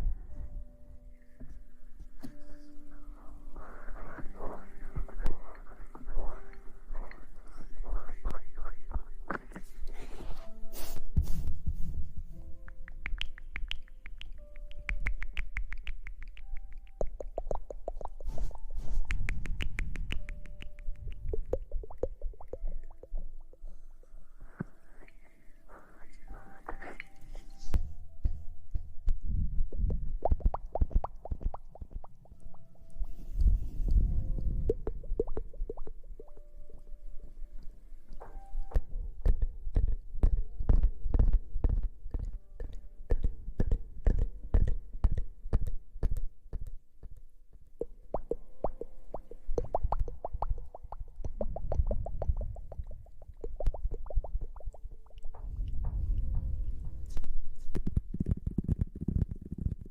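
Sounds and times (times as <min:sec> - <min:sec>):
fingers scrubbing hair: 0:03.7 - 0:09.6
crisp clicks and taps: 0:12.6 - 0:22.6
low rumble: 0:55.2 - 0:57.6.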